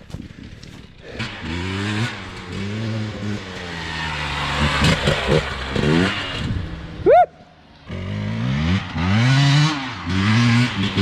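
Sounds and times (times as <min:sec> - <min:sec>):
dirt bike engine revving: 0:00.8 - 0:11.0.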